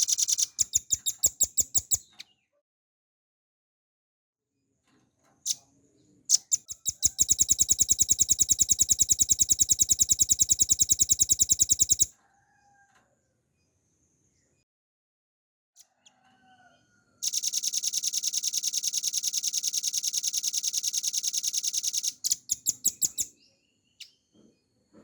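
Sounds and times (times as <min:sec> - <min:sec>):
nuthatch calling and trilling: 0:00.0 - 0:02.1, 0:06.3 - 0:12.1, 0:17.2 - 0:23.3.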